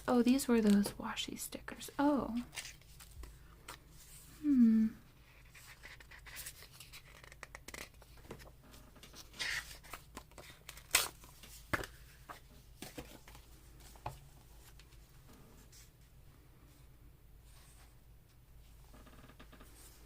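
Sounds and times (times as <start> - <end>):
paper rustling and crinkling: 2.3 - 4.3, 5.3 - 15.0.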